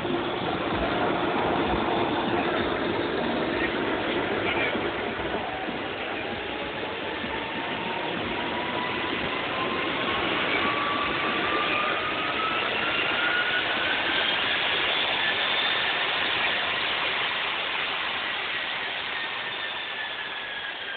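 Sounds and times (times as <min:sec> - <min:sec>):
high jet whine: 0:00.0 - 0:20.9
small jet engine roaring: 0:00.0 - 0:20.9.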